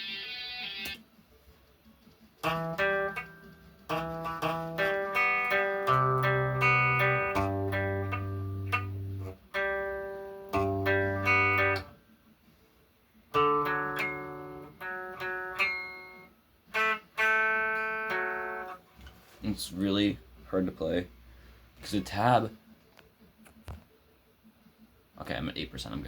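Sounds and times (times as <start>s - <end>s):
guitar chords ringing: 2.4s - 12.0s, 13.3s - 18.8s.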